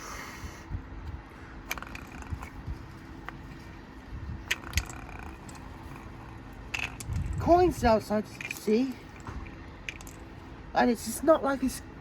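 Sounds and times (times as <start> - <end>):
sharp clicks and knocks: 4.4 - 7.5, 8.3 - 10.2.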